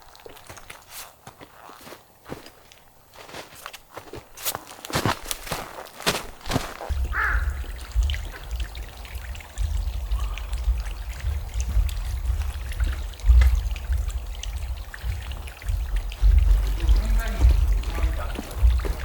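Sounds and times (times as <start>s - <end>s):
wind buffeting microphone: 6.9s - 19.0s.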